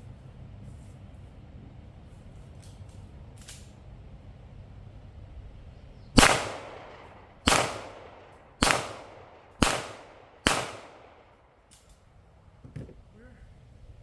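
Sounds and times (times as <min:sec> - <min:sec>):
gunshots with ringing echo: 0:06.2 - 0:11.5.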